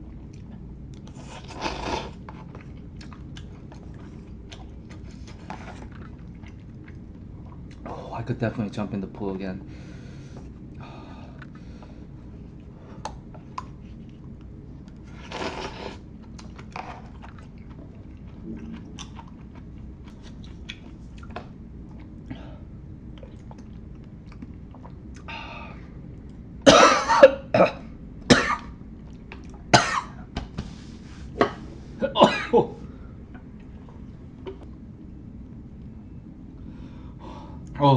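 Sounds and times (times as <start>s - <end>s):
person chewing: 0.0s - 7.9s, 12.4s - 22.3s, 23.0s - 25.3s
man coughing: 26.7s - 28.6s, 29.8s - 30.2s, 32.0s - 32.8s.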